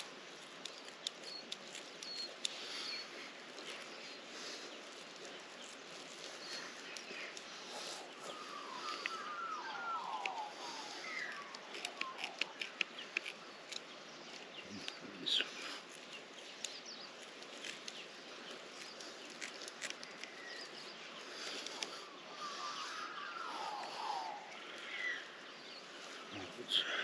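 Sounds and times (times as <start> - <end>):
hands clicking and snipping: 0.0 - 2.6, 10.1 - 10.4, 11.4 - 15.0, 16.0 - 18.0, 18.6 - 20.4
birds chirping and warbling: 0.0 - 27.0.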